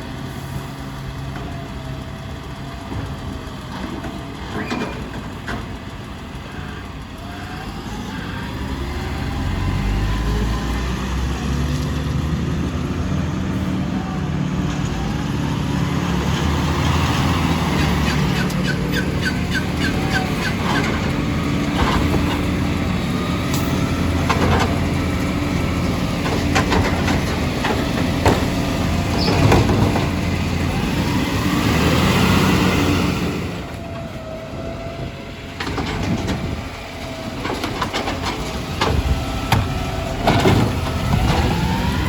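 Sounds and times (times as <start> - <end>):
diesel engine revving: 0.0 - 42.0
knocks and clatters: 25.8 - 30.3.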